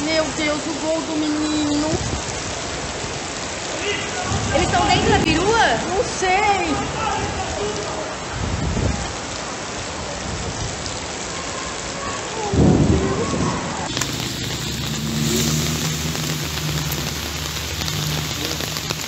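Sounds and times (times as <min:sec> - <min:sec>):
heavy rain: 0:00.0 - 0:19.0
rushing floodwater: 0:00.0 - 0:19.0
thunder rumble: 0:12.5 - 0:19.0.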